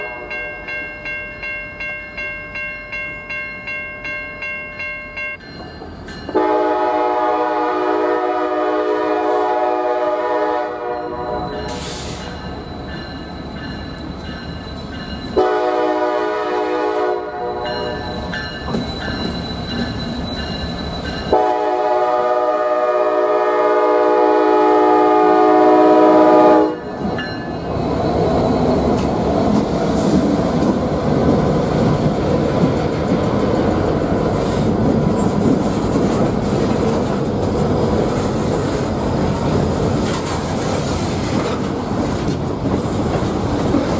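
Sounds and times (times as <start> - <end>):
diesel locomotive horn blasts: 0.0 - 0.5, 6.3 - 12.1, 15.4 - 18.1, 21.3 - 26.9
bell ringing: 0.0 - 6.4, 11.0 - 15.4, 17.6 - 21.4, 27.1 - 27.8
train engine and wheels running: 0.0 - 43.9.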